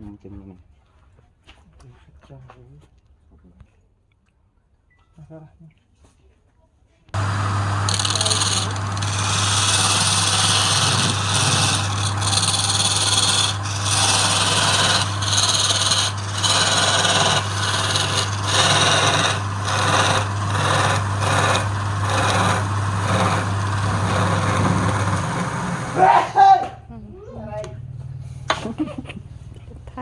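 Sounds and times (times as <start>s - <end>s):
wood lathe motor hum: 7.2s - 26.0s
tool scraping spinning wood: 7.2s - 26.1s.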